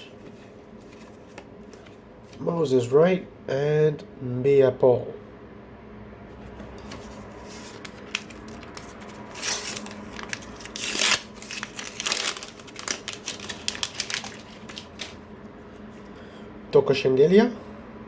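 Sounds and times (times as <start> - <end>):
wrapper tearing and crinkling: 6.9 - 15.2.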